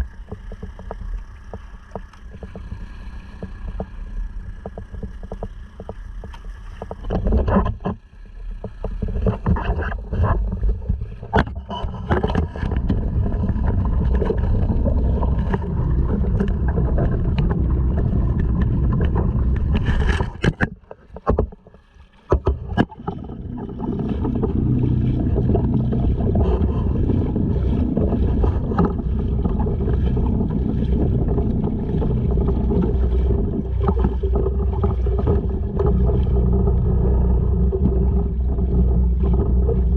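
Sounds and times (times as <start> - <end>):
outboard motor running: 0.0 - 39.9
water rushing along hull: 0.0 - 39.9
sharp splashes and knocks: 8.6 - 36.6.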